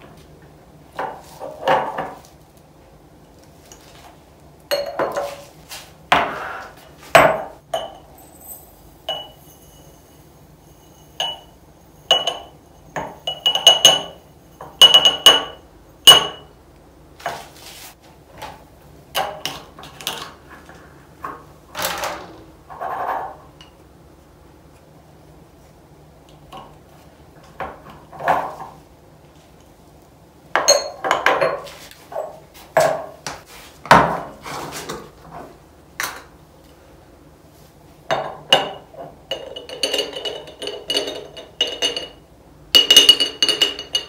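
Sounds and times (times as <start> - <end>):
glass jars clinking: 4.7 - 5.4, 7.2 - 16.5, 30.6 - 32.3, 38.1 - 42.2, 42.8 - 44.0.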